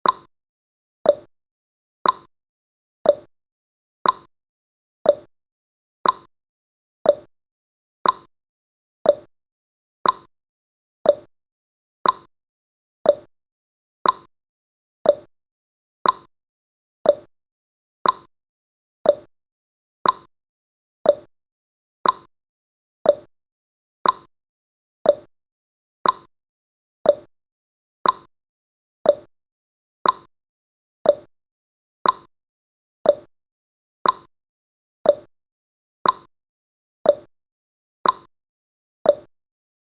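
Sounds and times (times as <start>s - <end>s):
timer ticking: 0.0s - 0.3s, 1.1s - 1.3s, 2.0s - 2.3s, 3.0s - 3.3s, 4.0s - 4.3s, 5.1s - 5.3s, 6.0s - 6.3s, 7.0s - 7.3s, 8.0s - 8.3s, 9.0s - 9.3s, 10.0s - 10.3s, 11.0s - 11.3s, 12.0s - 12.3s, 13.0s - 13.3s, 14.0s - 14.3s, 15.0s - 15.3s, 16.0s - 16.3s, 17.0s - 17.3s, 18.0s - 18.3s, 19.0s - 19.3s, 20.0s - 20.3s, 21.0s - 21.3s, 22.0s - 22.3s, 23.0s - 23.3s, 24.0s - 24.3s, 25.0s - 25.3s, 26.0s - 26.3s, 27.0s - 27.3s, 28.0s - 28.3s, 29.0s - 29.3s, 30.0s - 30.3s, 31.0s - 31.3s, 32.0s - 32.3s, 33.0s - 33.3s, 34.0s - 34.3s, 35.0s - 35.3s, 36.0s - 36.3s, 37.1s - 37.3s, 38.0s - 38.3s, 39.1s - 39.3s.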